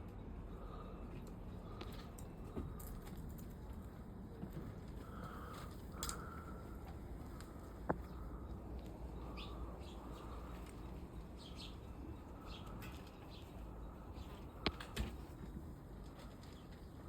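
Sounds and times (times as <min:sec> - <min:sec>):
chickens chirping softly: 0:05.0 - 0:17.0.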